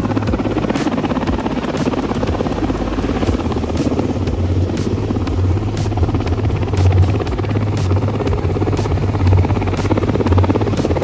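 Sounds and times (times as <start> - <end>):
helicopter rotor and engine: 0.0 - 11.0
music with steady beat: 0.0 - 11.0.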